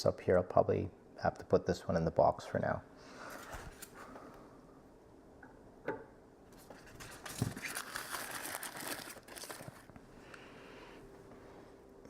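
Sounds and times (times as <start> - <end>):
packaging crinkling and rustling: 6.6 - 10.0.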